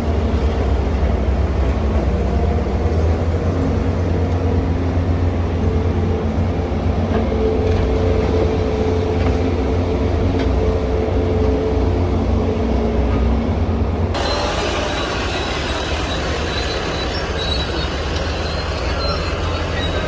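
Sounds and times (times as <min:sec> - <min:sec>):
excavator diesel engine rumbling: 0:00.0 - 0:20.0
hydraulic whine: 0:14.1 - 0:20.0.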